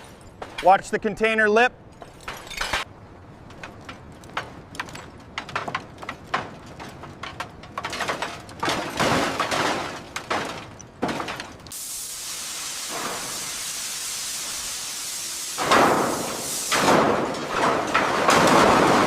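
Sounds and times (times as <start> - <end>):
debris scraping: 1.9 - 11.7, 15.6 - 19.0
debris clattering into container: 4.8 - 11.7, 15.6 - 19.0.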